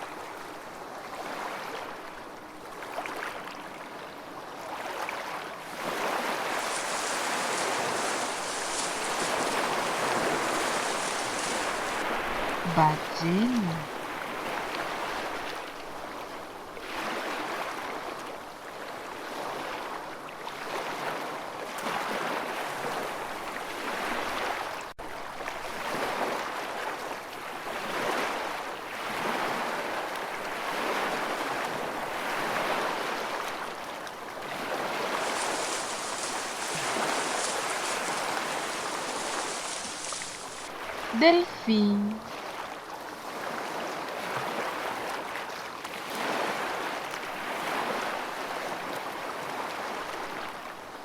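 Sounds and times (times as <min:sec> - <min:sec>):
ocean water surging: 0:05.6 - 0:15.3, 0:29.0 - 0:42.6.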